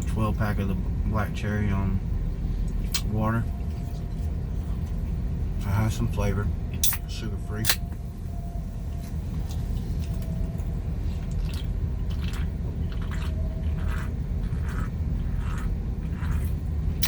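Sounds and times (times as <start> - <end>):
person chewing food: 3.6 - 5.2, 9.0 - 17.0.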